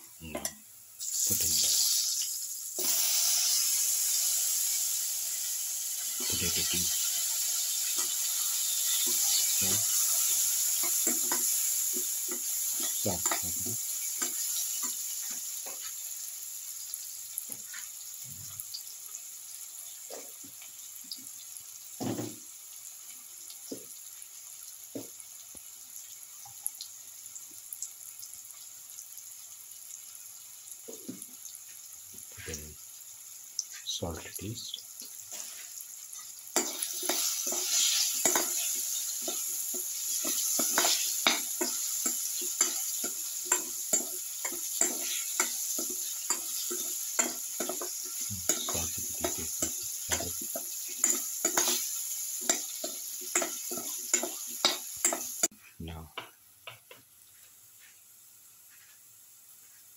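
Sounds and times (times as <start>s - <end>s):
food sizzling in hot oil: 0.0s - 59.9s
metal spoon scraping a pan: 7.8s - 13.5s, 35.3s - 55.5s.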